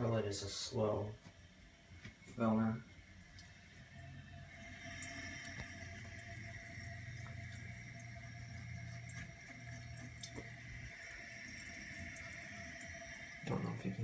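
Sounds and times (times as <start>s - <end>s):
low hum: 0.0s - 14.0s
toilet fill valve hissing: 0.0s - 14.0s.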